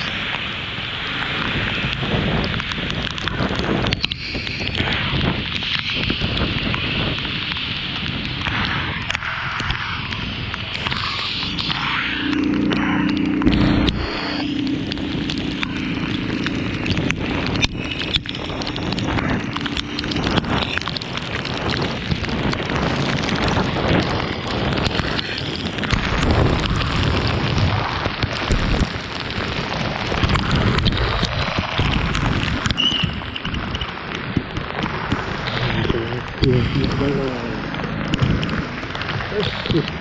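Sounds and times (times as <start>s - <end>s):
rain noise: 0.0s - 40.0s
wind buffeting microphone: 0.0s - 40.0s
steady low hum: 10.3s - 21.8s.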